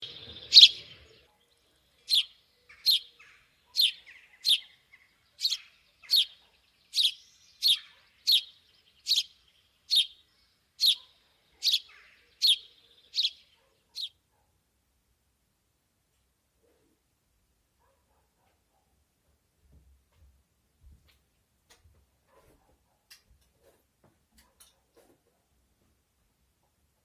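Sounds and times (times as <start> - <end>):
small bird chirping: 0.0 - 14.2.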